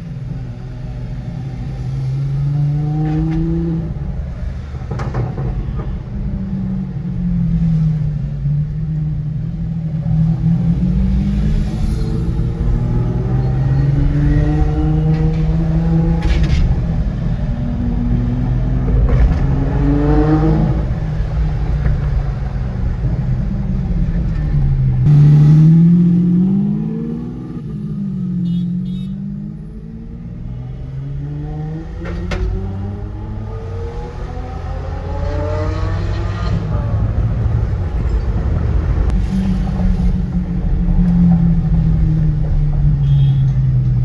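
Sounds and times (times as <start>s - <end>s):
sports car engine revving: 25.0s - 28.5s.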